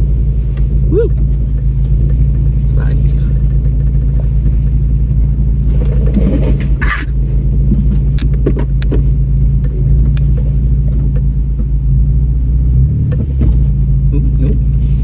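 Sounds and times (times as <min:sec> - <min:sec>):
sharp knocks and rattles: 0:00.0 - 0:11.8
vehicle engine running low: 0:00.0 - 0:15.0.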